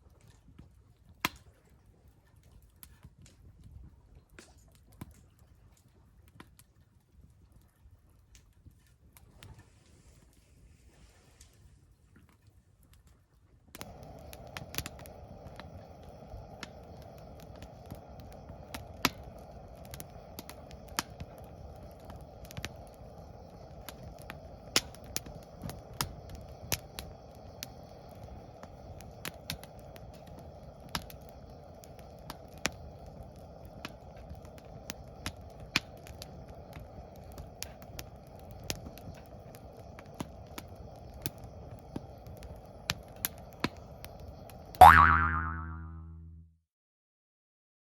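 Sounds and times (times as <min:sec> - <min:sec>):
wood fire crackling and popping: 0:00.0 - 0:45.2
low rushing of fire: 0:07.2 - 0:44.8.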